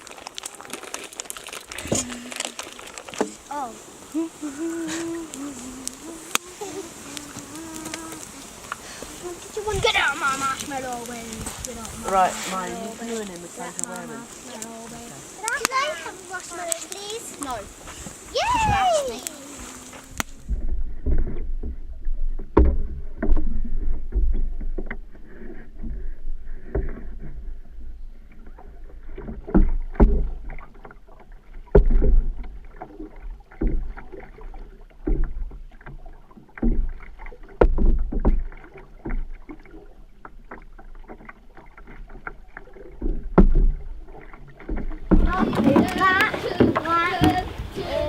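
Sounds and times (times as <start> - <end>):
paddle strokes in water: 0.0 - 48.0
sharp knocks: 43.0 - 43.9, 44.7 - 47.5.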